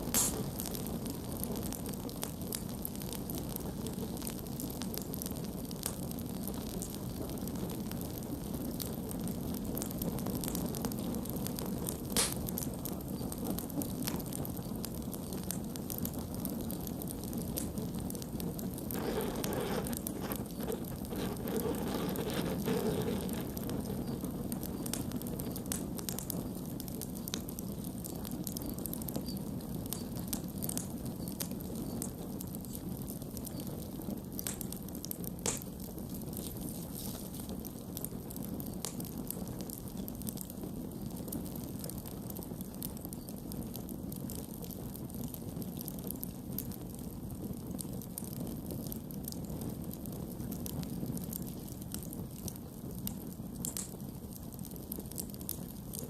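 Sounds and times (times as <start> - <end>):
flame rushing: 0.0 - 3.6, 9.5 - 39.7
fire crackling and popping: 0.0 - 56.0.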